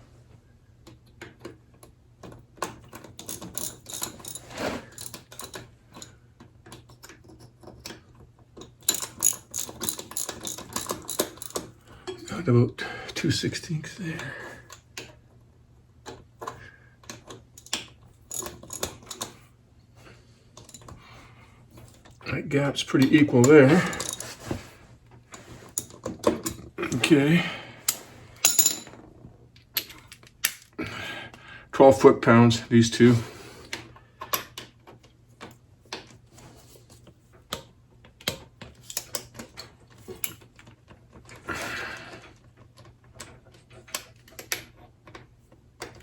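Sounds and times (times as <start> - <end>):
metal tools clicking: 2.9 - 6.1, 8.8 - 12.2, 17.6 - 19.3, 23.0 - 24.4, 27.8 - 29.0.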